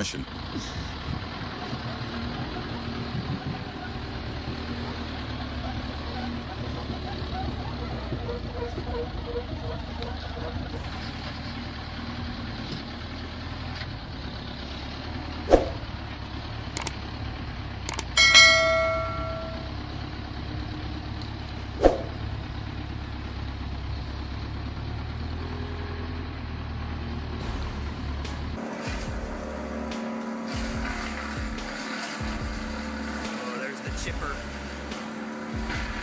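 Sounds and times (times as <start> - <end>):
loud ringing metallic clang: 18.1 - 19.9.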